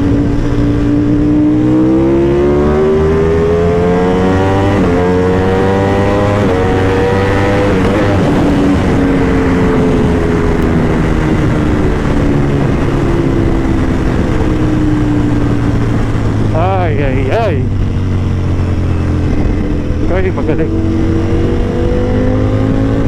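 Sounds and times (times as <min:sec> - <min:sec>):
motorcycle engine revving: 0:00.0 - 0:23.0
wind rush: 0:00.0 - 0:23.0.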